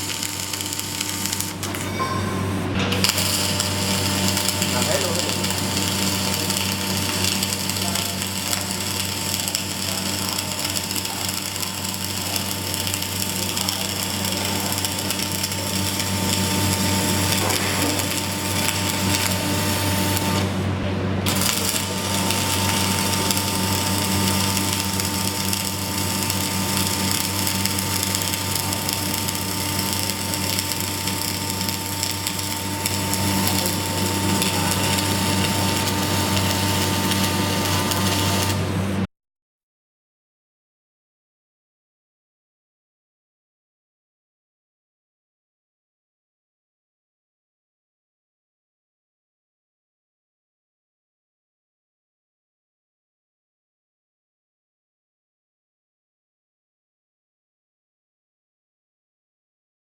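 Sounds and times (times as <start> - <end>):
arc welding crackling hiss: 0.0 - 1.8, 3.0 - 20.6, 21.2 - 39.1.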